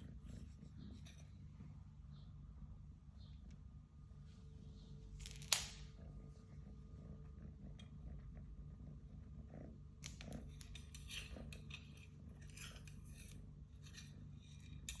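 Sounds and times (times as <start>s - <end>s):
low hum: 0.0s - 15.0s
cat scratching and rustling: 6.4s - 15.0s.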